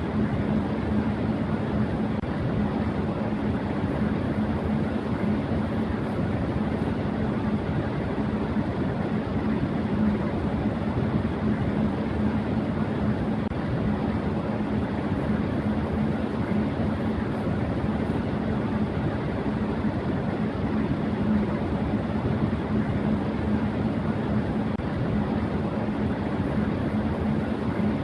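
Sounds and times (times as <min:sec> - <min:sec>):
electric fan running: 0:00.0 - 0:28.0.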